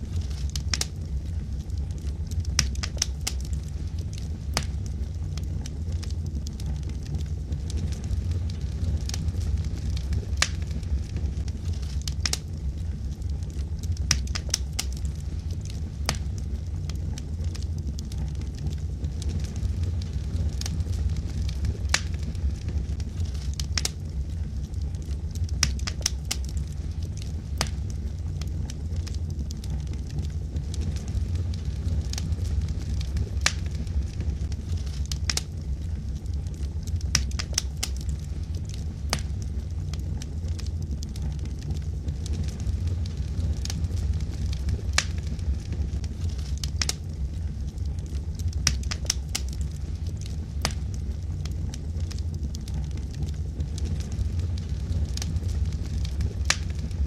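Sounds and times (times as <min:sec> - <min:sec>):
fire crackles and pops: 0:00.0 - 0:57.0
low rumble of flames: 0:00.0 - 0:57.0.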